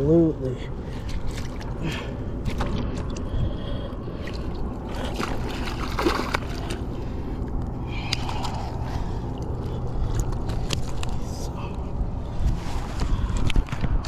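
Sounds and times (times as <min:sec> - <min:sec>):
water sloshing and splashing: 0:00.7 - 0:11.3.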